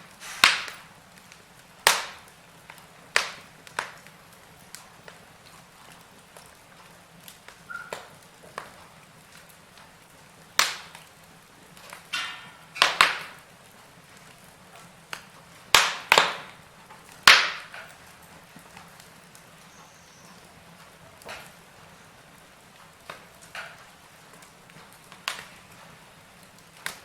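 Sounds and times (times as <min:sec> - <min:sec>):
wood fire crackling: 0:00.0 - 0:27.0
hiss of escaping gas: 0:00.1 - 0:00.9.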